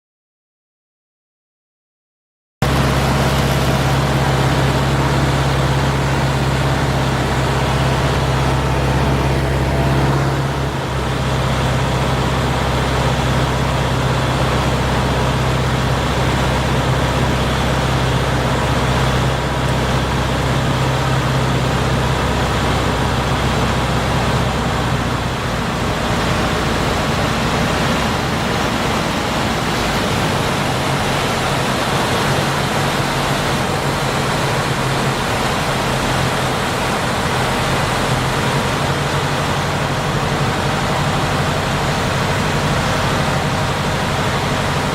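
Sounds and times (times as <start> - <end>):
aircraft engine and propeller droning: 2.6 - 44.9
heavy rushing noise: 2.6 - 44.9.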